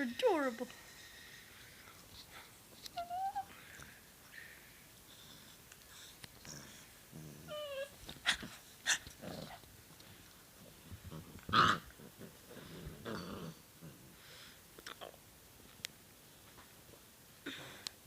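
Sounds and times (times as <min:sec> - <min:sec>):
puppies growling and whimpering: 0:06.4 - 0:09.6, 0:11.0 - 0:14.2.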